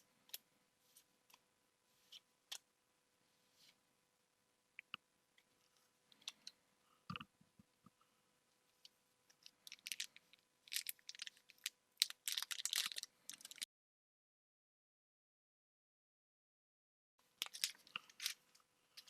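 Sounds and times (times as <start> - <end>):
foil wrapper crinkling: 9.6 - 13.6, 17.4 - 18.4.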